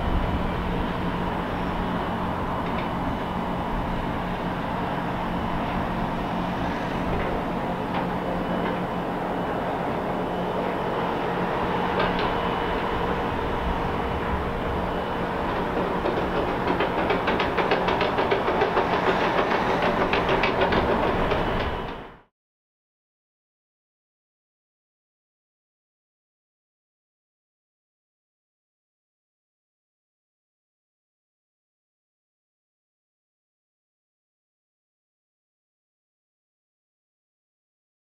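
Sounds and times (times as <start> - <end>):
wheels clicking over rail joints: 0.0 - 22.2
diesel engine hum: 0.0 - 22.3.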